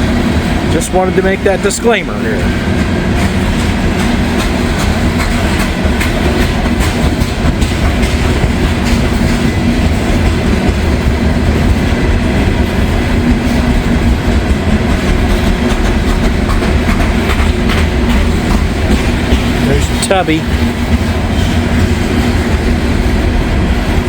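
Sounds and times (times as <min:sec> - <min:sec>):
train rumbling past: 0:00.0 - 0:24.0
wheels clacking over rail joints: 0:00.3 - 0:24.0.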